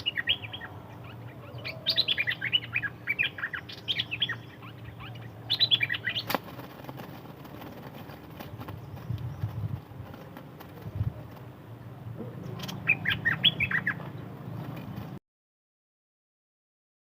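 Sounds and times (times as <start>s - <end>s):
songbird twittering: 0.0s - 6.6s, 12.2s - 15.2s.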